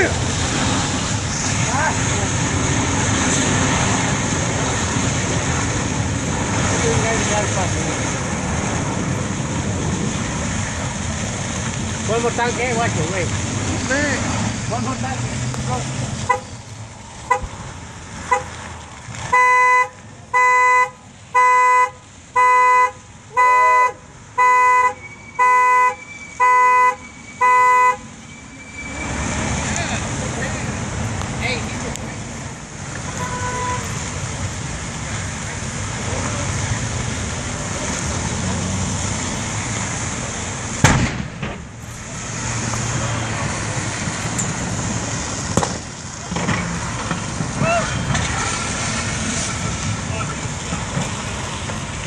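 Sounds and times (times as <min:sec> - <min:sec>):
fire noise: 0:00.0 - 0:52.0
roadside traffic: 0:00.0 - 0:52.0
car alarm horn honking: 0:16.3 - 0:16.6, 0:19.3 - 0:28.1, 0:33.2 - 0:34.0
sharp bang: 0:40.8 - 0:41.7.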